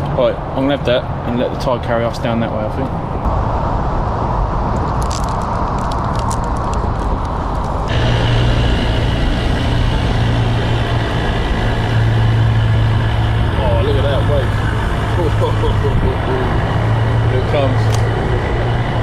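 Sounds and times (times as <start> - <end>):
motorboat engine running: 7.1 - 19.0.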